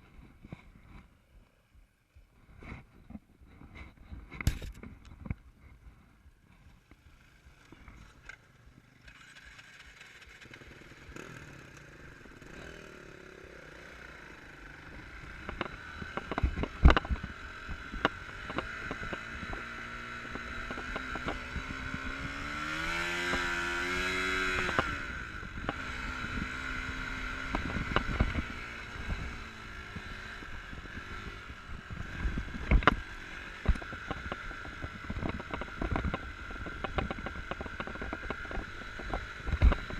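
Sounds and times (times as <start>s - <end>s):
dirt bike engine revving: 9.0s - 39.9s.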